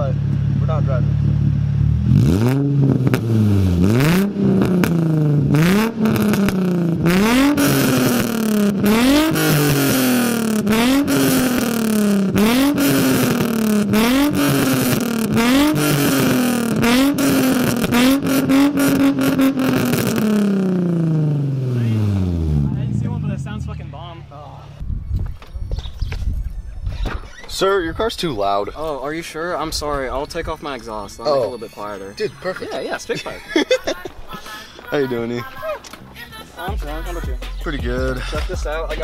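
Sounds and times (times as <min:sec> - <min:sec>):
car engine revving: 0:00.0 - 0:24.8
exhaust pops and crackles: 0:02.4 - 0:21.1.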